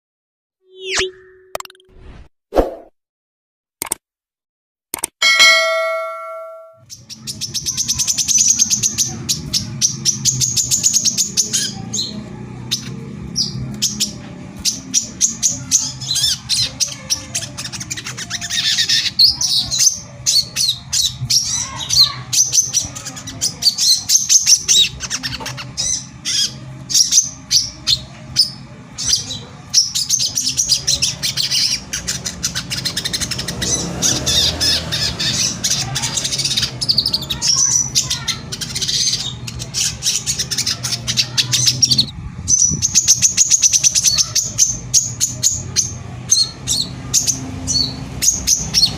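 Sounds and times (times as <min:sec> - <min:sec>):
bird singing rapid high chirps: 0:00.6 - 0:01.8, 0:05.2 - 0:48.9.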